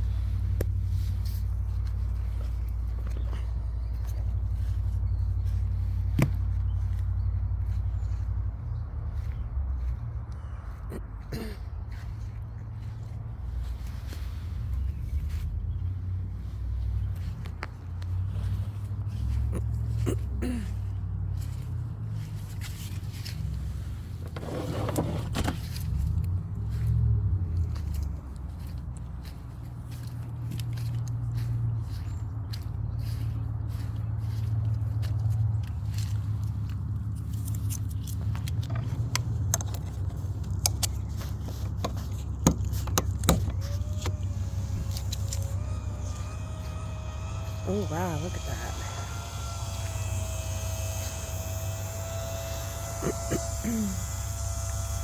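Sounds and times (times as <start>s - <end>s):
scraping rustle: 22.2s - 27.0s
pump humming: 43.3s - 55.0s.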